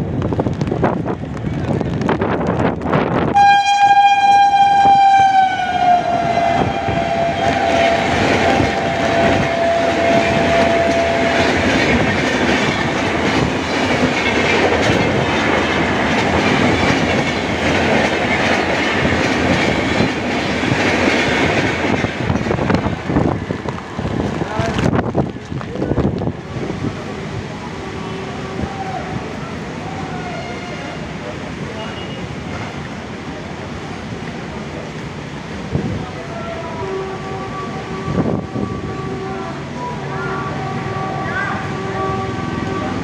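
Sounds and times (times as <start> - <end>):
train coaches rumbling and clattering: 0.0 - 43.0
locomotive horn blast: 3.3 - 11.7, 36.6 - 43.0.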